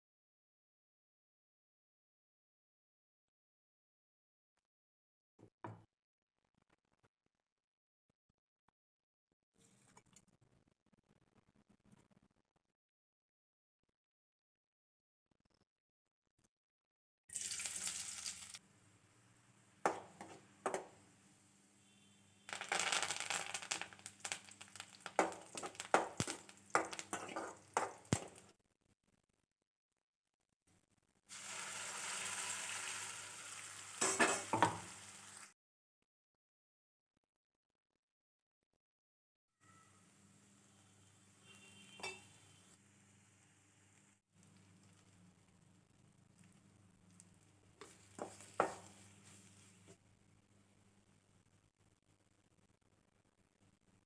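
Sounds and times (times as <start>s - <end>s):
food sizzling in oil: 17.3s - 18.6s, 22.5s - 28.5s, 31.3s - 35.5s, 47.8s - 50.0s
spoon knocking against pan: 19.8s - 21.0s, 25.2s - 28.4s, 47.8s - 49.0s.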